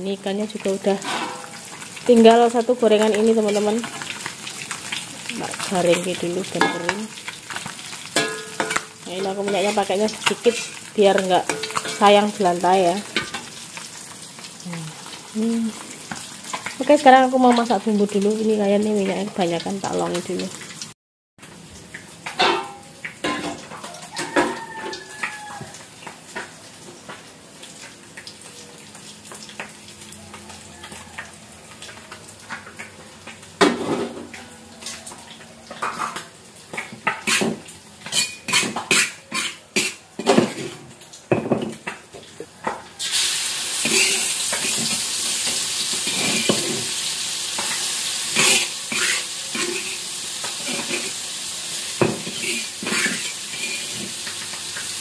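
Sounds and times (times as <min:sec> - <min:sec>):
paste sizzling in hot oil: 0:00.0 - 0:55.0
clinks against plates: 0:08.2 - 0:09.4, 0:11.5 - 0:12.1, 0:22.3 - 0:25.4.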